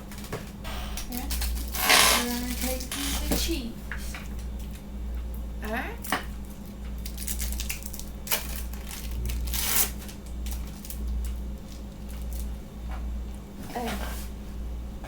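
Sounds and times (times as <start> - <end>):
steady low hum: 0.0 - 15.0
plastic wrapping crinkling and tearing: 1.1 - 2.9, 6.6 - 12.6.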